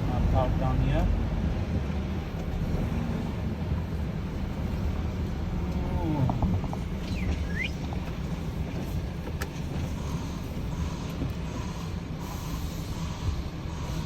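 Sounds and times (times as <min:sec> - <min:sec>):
truck diesel engine rumble: 0:00.0 - 0:14.0
short high squeak: 0:07.0 - 0:07.8.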